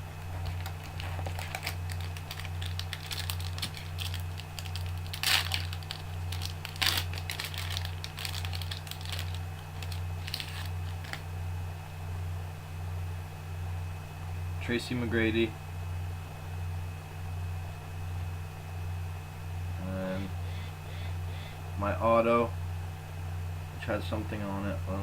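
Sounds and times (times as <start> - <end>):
steady low hum: 0.0 - 25.0
trading cards rustling: 0.1 - 11.3.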